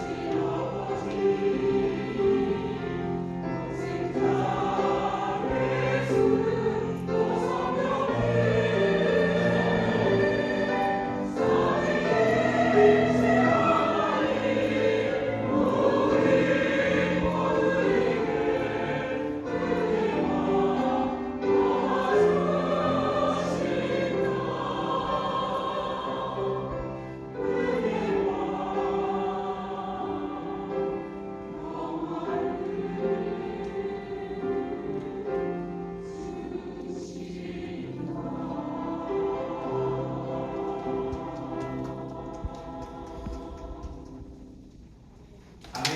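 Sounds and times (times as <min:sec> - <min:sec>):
choir singing held chords: 0:00.0 - 0:45.0.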